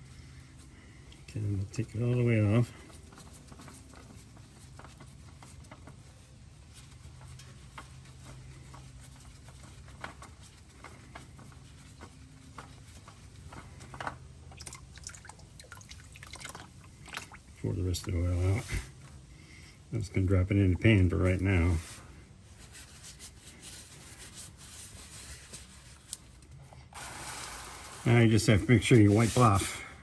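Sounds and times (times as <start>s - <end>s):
oil dripping into a pan: 14.6s - 17.4s.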